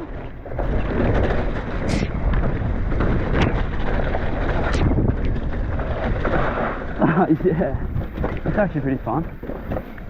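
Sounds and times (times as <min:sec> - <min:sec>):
bike rattling clacks: 0:00.0 - 0:10.0
tyre and trail noise: 0:00.0 - 0:10.0
wind buffeting microphone: 0:00.0 - 0:10.0.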